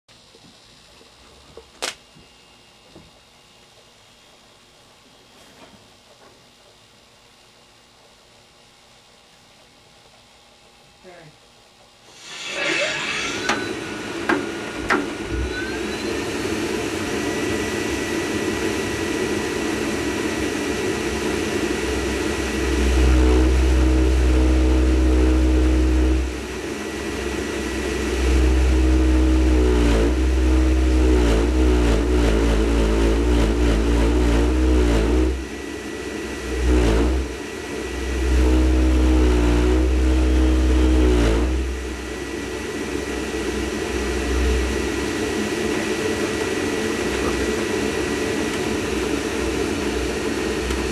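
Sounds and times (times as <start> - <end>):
fan whirring: 11.9 - 50.9
deep bass drone: 15.3 - 50.9.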